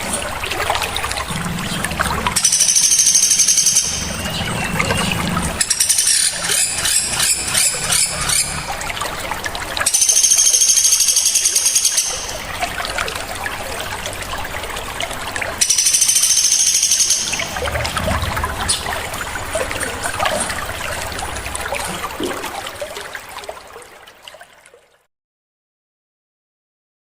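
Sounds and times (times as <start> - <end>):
running water trickling: 0.0 - 25.1
songbirds trilling and chattering: 0.9 - 9.0, 9.9 - 12.8, 15.6 - 17.8.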